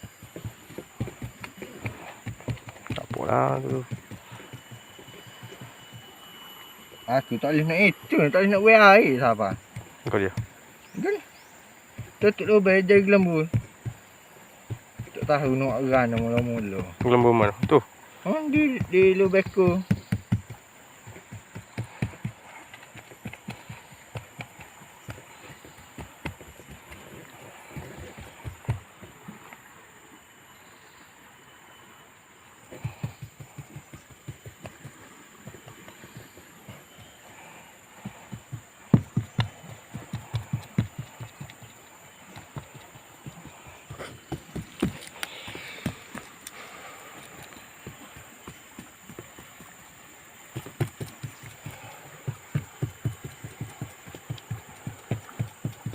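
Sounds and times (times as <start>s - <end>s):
dull knocks and taps: 9.4s - 10.6s, 11.9s - 12.5s, 13.2s - 25.2s, 38.3s - 43.0s.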